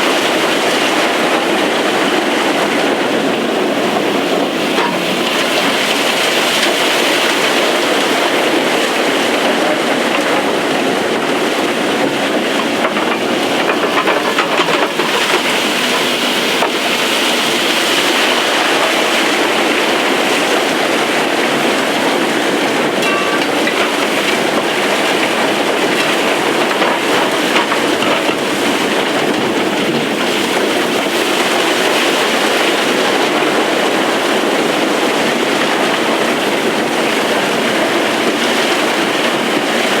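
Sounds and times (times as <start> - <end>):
mining machinery roaring: 3.2 - 32.9
faint clicks and knocks: 12.5 - 16.8.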